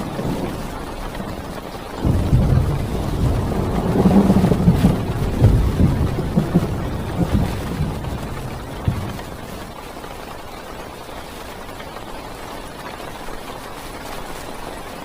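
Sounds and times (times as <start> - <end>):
thunder rumbling: 0.0 - 9.8
heavy rain on a car: 0.0 - 15.0.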